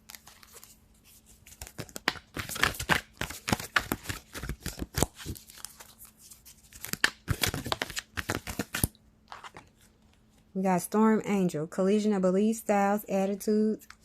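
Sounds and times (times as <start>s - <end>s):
cards being shuffled: 0.0s - 10.4s.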